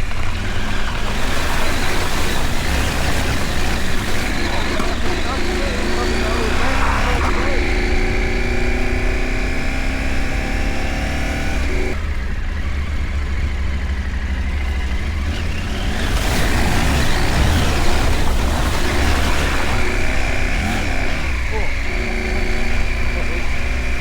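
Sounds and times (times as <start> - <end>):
broad rushing noise: 0.0 - 8.8
motorcycle engine running: 0.0 - 24.0.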